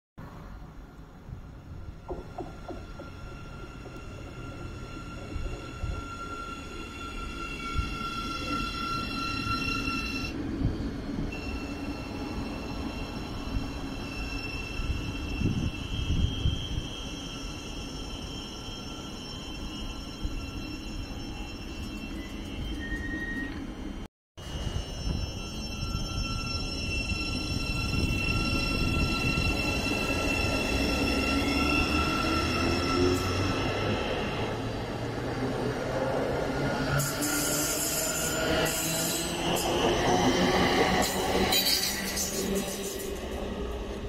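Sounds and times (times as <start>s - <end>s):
wheels rumbling on rail: 0.3s - 9.6s
train wheels rumbling on track: 1.2s - 19.1s
electric train whine: 1.5s - 44.0s.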